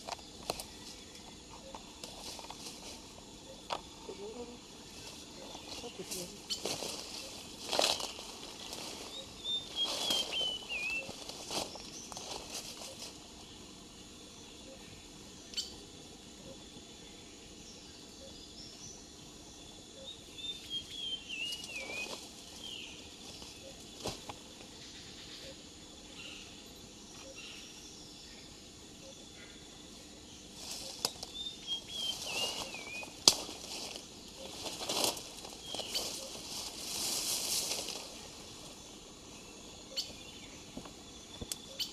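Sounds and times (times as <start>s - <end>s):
rainforest ambience: 0.0s - 41.9s
rustling: 1.6s - 3.2s, 4.9s - 13.2s, 30.6s - 38.8s.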